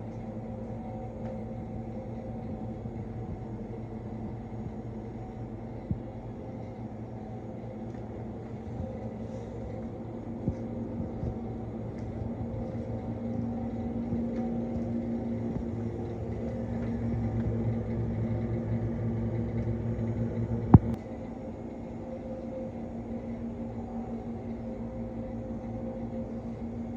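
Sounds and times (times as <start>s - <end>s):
truck engine drone: 0.0s - 26.9s.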